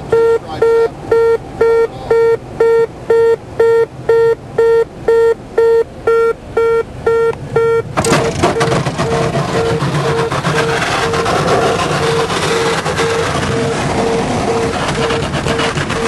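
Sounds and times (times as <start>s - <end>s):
electronic warning beeper: 0.1s - 16.0s
loud rushing noise: 8.0s - 16.0s.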